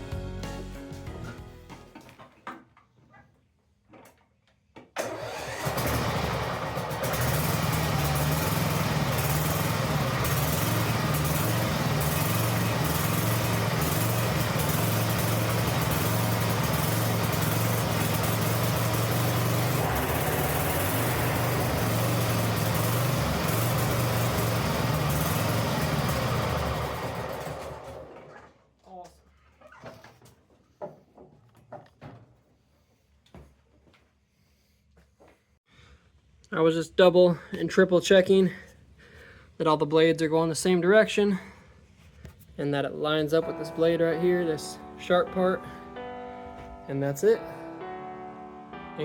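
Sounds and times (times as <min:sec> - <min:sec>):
lawn mower engine running: 0:05.0 - 0:28.3.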